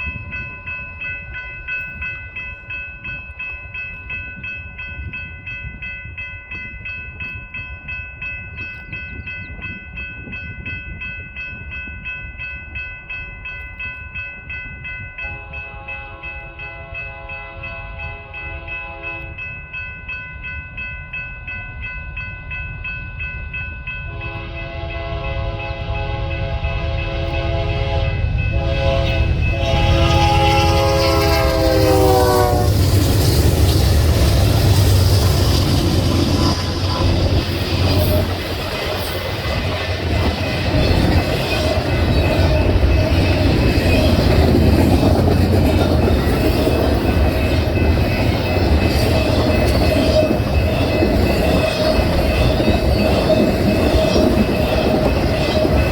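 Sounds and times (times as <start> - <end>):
crossing bell ringing: 0.0 - 55.9
lower-pitched crossing bell: 0.0 - 55.9
train rumbling on tracks: 0.0 - 55.9
train air horn: 24.1 - 33.0.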